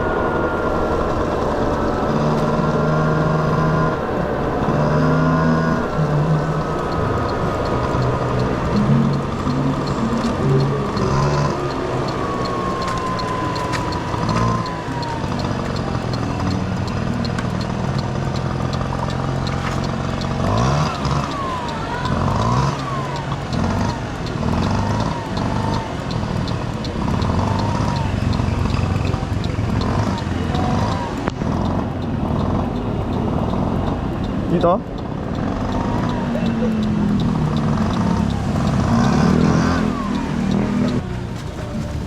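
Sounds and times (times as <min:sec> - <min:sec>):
scooter engine revving: 0:00.0 - 0:42.0.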